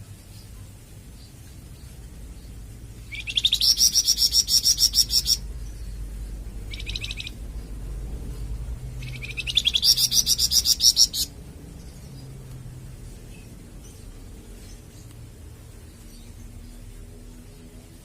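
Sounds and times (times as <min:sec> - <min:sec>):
bird trilling: 0:03.0 - 0:05.5, 0:06.6 - 0:07.4, 0:09.0 - 0:11.4.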